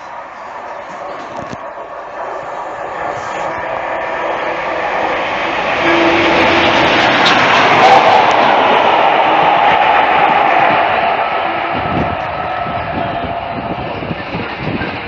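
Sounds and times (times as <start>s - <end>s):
train running noise: 0.0s - 15.0s.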